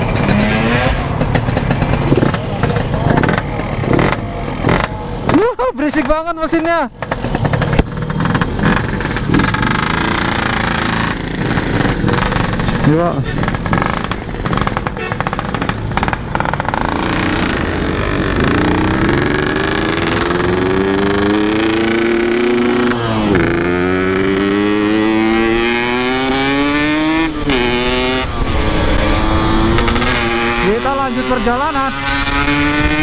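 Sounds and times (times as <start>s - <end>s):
motorcycle engine accelerating: 0.0s - 33.0s
rider talking: 0.2s - 7.6s, 12.6s - 14.9s, 28.6s - 33.0s.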